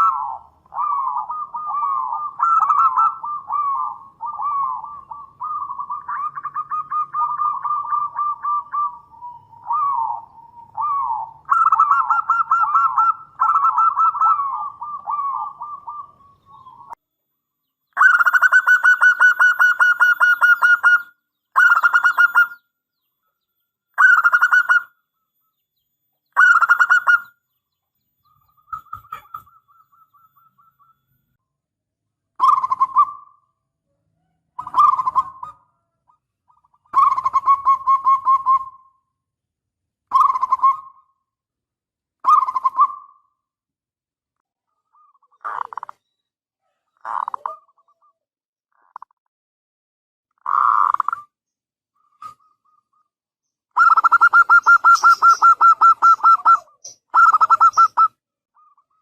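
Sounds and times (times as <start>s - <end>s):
dove cooing: 0.0s - 17.0s, 18.0s - 22.6s, 28.2s - 31.0s, 32.4s - 33.4s, 34.1s - 38.9s, 40.1s - 41.1s, 42.2s - 43.3s, 45.0s - 46.0s, 46.6s - 48.2s, 53.8s - 59.0s.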